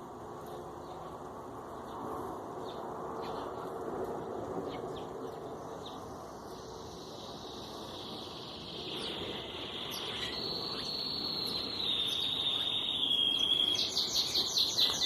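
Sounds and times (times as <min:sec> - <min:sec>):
rushing outdoor noise: 0:00.0 - 0:15.0
small birds chirping: 0:00.4 - 0:15.0
high insect trill: 0:06.0 - 0:15.0.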